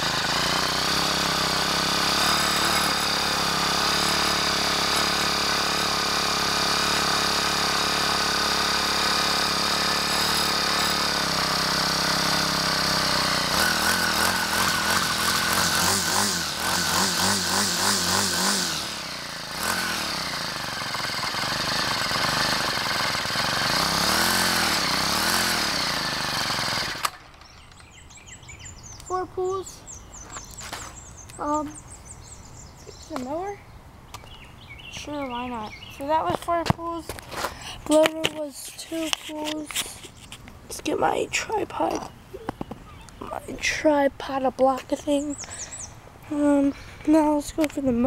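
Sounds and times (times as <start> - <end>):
string trimmer engine revving: 0.0 - 29.2.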